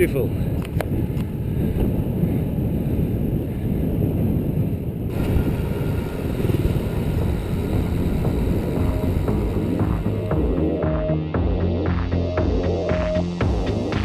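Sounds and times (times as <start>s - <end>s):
wind buffeting microphone: 0.0s - 10.6s
bicycle tyre road rumble: 0.0s - 11.1s.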